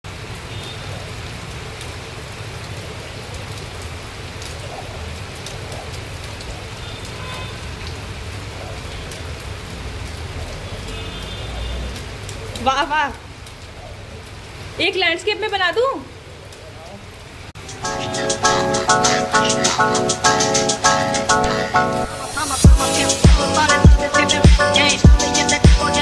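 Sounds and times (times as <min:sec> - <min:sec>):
rain falling: 0:00.0 - 0:26.0
raindrop clicks: 0:01.3 - 0:14.3.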